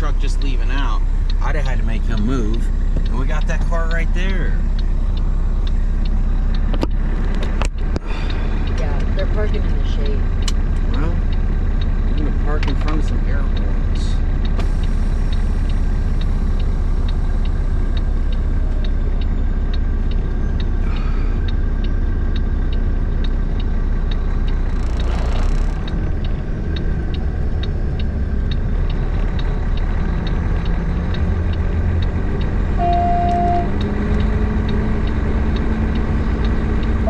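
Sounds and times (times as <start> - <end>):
regular ticking: 0.0 - 37.0
truck engine running: 0.0 - 37.0
short beep: 32.8 - 33.7.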